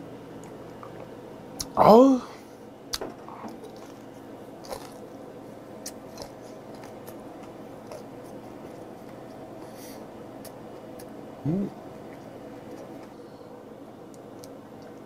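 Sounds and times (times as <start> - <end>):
chewing with wet mouth clicks: 5.8 - 9.4, 10.4 - 11.2, 14.1 - 15.0.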